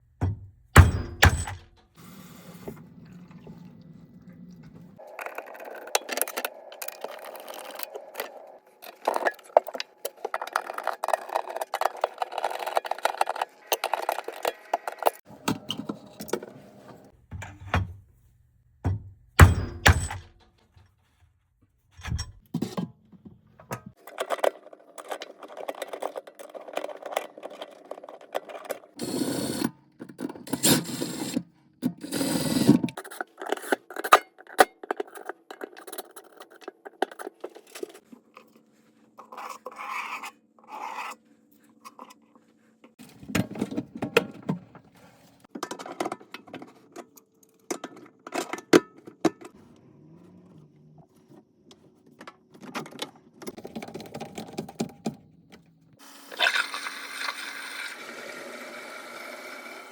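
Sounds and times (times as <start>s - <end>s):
metal parts clanking and scraping: 0.8s - 1.7s, 5.0s - 17.9s, 19.4s - 20.5s, 23.9s - 38.6s.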